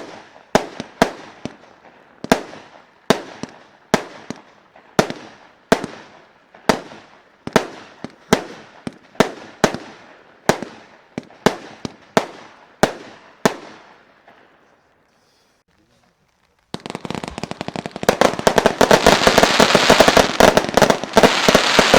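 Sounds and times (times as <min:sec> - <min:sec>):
firework bangs: 0:00.0 - 0:14.6, 0:16.7 - 0:21.9
small firework pops: 0:15.8 - 0:21.9.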